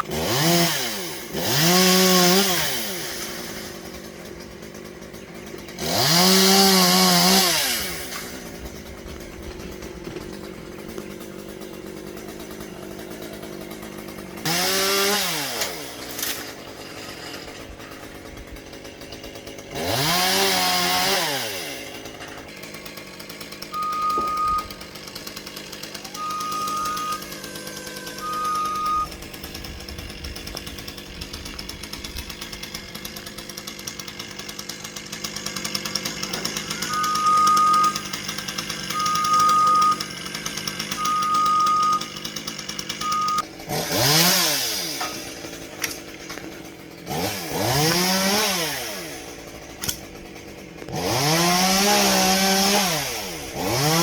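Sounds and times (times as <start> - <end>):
steady engine hum: 0.0 - 16.0, 20.8 - 34.1, 35.8 - 54.0
chainsaw revving: 0.0 - 54.0
short high beeps: 23.8 - 24.7, 26.2 - 29.1, 36.8 - 38.0, 39.0 - 40.0, 41.0 - 42.0, 43.1 - 43.4.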